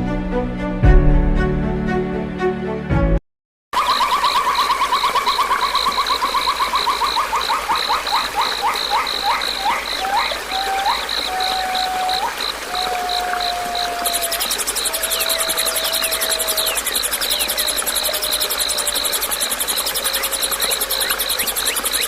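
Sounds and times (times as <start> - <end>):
lower trilling animal call: 3.8 - 22.0
high pulsing chirp: 14.0 - 22.0.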